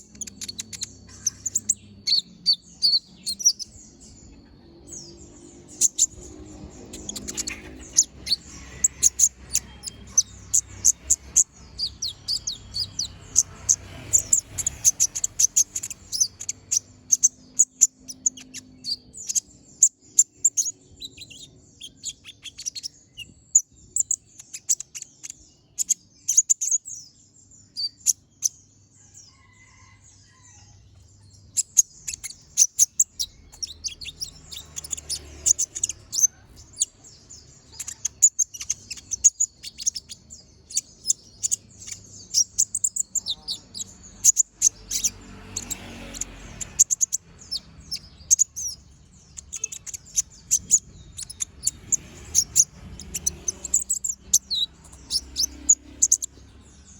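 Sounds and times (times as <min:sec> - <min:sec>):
bird chirping and trilling: 0:00.0 - 0:56.9.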